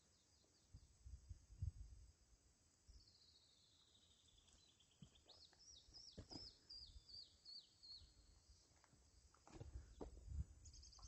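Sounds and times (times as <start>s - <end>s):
small bird trilling song: 3.0s - 8.4s, 10.6s - 11.0s.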